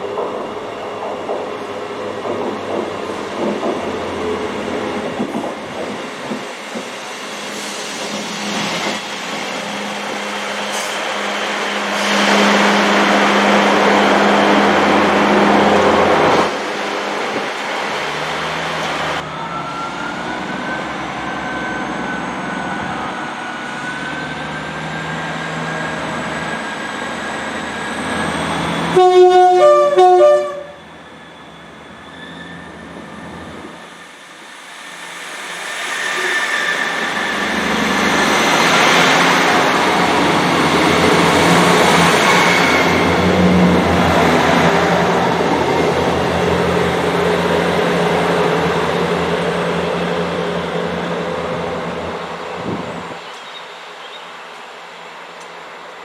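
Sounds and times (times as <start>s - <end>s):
train running: 0.0s - 19.3s, 20.3s - 56.0s
two-note train horn: 28.9s - 30.8s.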